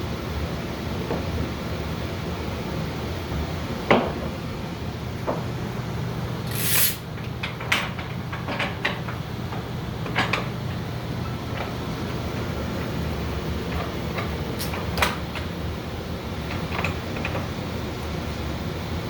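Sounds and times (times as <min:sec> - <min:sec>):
strap webbing rasp: 0:06.5 - 0:07.0.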